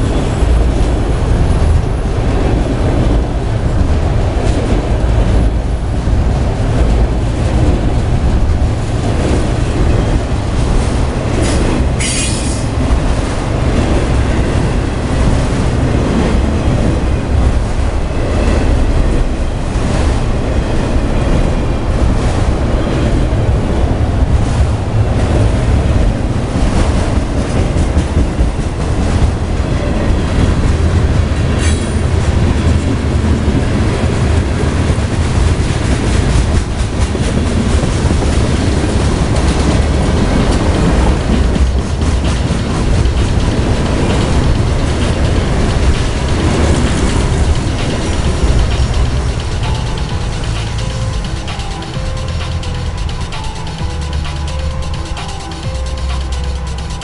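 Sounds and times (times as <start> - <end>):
train wheels rumbling on rail: 0.0 - 57.0
high wheel squeal: 11.4 - 12.7.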